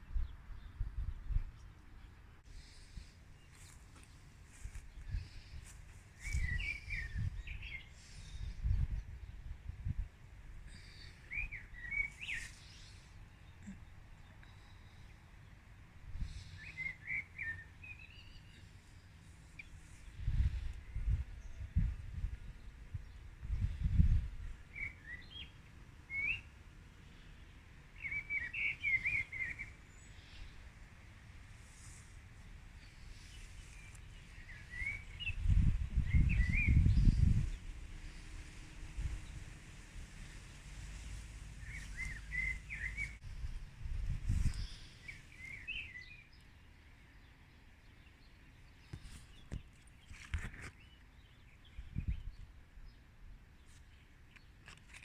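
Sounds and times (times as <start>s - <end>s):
wind rumble on microphone: 0.0s - 2.2s, 4.6s - 12.4s, 19.9s - 25.2s, 33.1s - 45.6s, 51.7s - 53.0s
songbird chirping: 0.0s - 55.0s.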